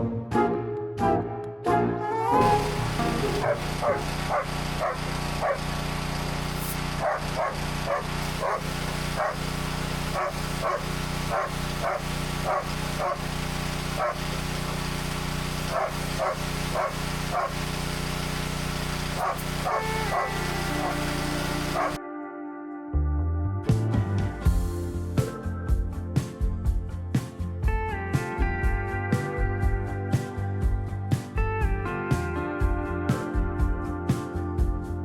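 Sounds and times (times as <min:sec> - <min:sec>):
dog barking: 0:03.4 - 0:05.7, 0:07.0 - 0:09.5, 0:10.1 - 0:13.3, 0:13.9 - 0:14.3, 0:15.7 - 0:17.7, 0:19.2 - 0:22.0.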